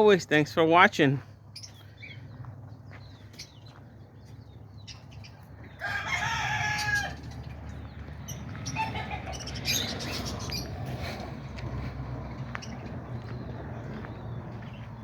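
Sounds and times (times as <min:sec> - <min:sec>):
small birds chirping: 0:00.0 - 0:15.0
rooster crowing: 0:05.8 - 0:07.3.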